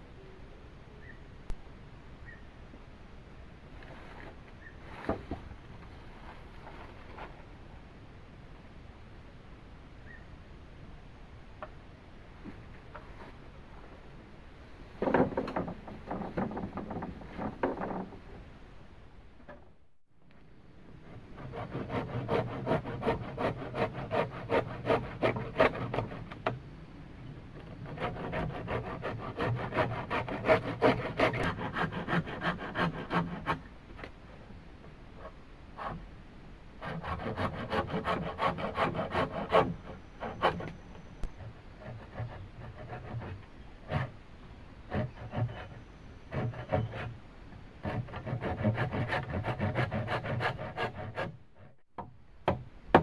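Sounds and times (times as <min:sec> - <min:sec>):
hand tool rasping bamboo: 0:21.4 - 0:26.4, 0:27.8 - 0:33.6, 0:36.8 - 0:40.8, 0:44.9 - 0:47.1, 0:47.8 - 0:51.4.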